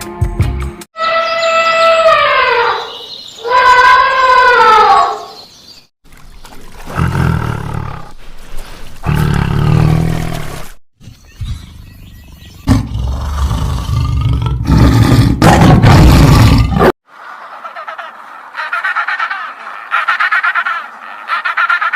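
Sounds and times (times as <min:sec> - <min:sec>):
big cat roaring: 0:09.0 - 0:10.7, 0:12.7 - 0:16.9.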